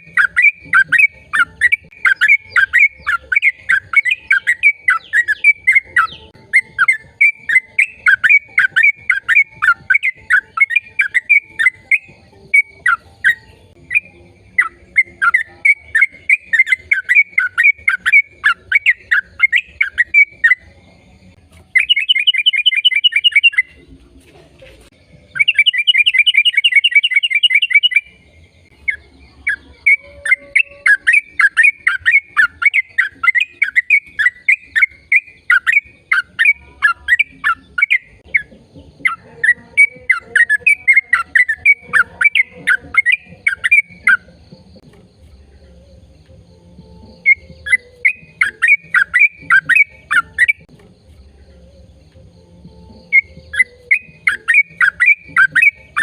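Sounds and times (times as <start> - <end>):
bird trills: 0.0 - 20.8, 21.7 - 23.8, 25.3 - 44.8, 45.4 - 50.7, 51.5 - 56.0
bird singing: 0.0 - 56.0.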